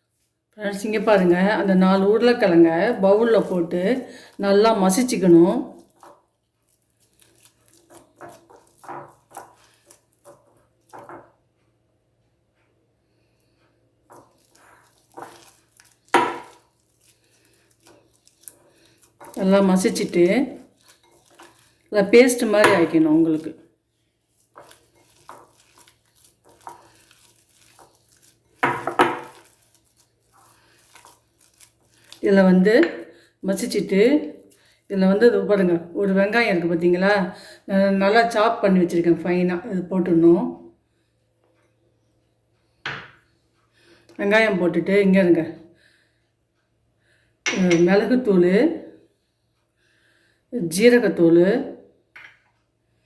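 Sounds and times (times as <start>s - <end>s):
potatoes being mashed: 1.0s - 11.3s, 14.0s - 23.6s, 24.2s - 34.6s
utensil scraping a bowl: 7.0s - 11.3s, 14.1s - 23.6s, 24.3s - 32.2s.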